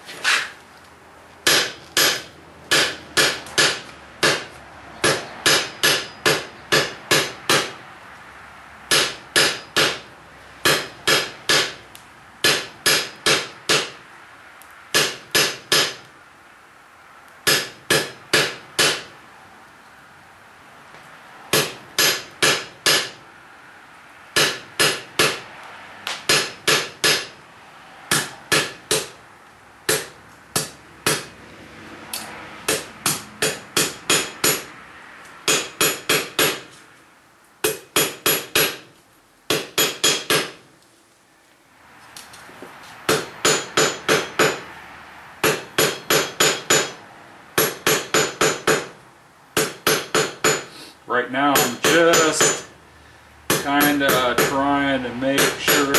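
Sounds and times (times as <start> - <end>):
hammer striking metal on anvil: 1.4 - 7.8, 8.9 - 11.8, 12.4 - 14.0, 15.0 - 16.0, 17.4 - 19.1, 21.5 - 23.2, 24.4 - 25.4, 26.1 - 27.4, 28.1 - 29.2, 32.2 - 34.7, 35.5 - 36.7, 37.6 - 38.9, 39.5 - 40.6, 43.1 - 44.6, 45.4 - 47.0, 47.6 - 49.0, 49.6 - 50.7, 51.5 - 52.7, 53.5 - 54.6, 55.4 - 55.9.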